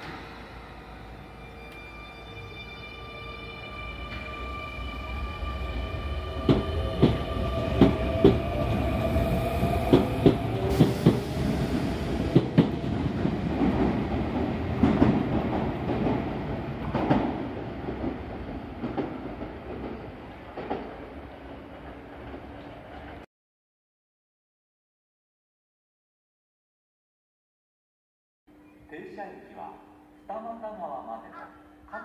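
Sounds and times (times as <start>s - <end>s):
train wheels clacking on rail joints: 7.8s - 8.4s.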